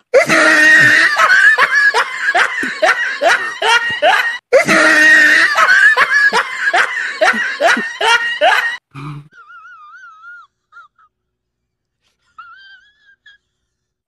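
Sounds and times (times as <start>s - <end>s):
person wheezing laugh: 0.2s - 11.2s.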